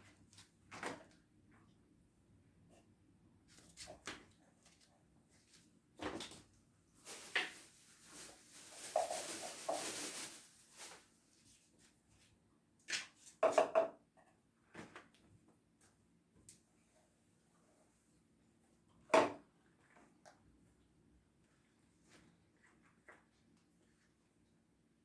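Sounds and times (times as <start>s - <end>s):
kitchen knocks and clatter: 13.4s - 14.0s.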